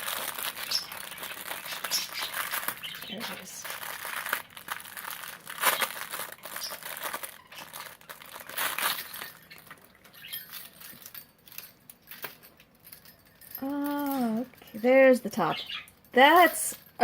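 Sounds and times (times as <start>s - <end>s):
plastic bag crinkling and tearing: 0.0s - 10.8s.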